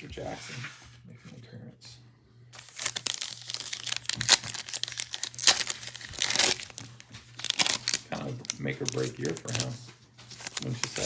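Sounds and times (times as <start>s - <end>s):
plastic wrapper crinkling and tearing: 2.6s - 11.0s.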